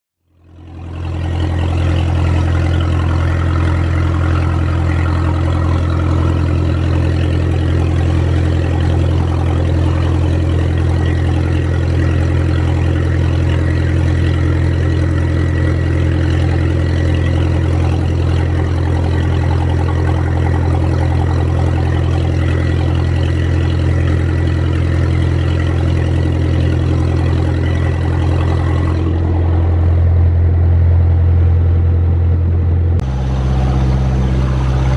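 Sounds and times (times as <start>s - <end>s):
marine diesel engine running: 0.2s - 34.9s.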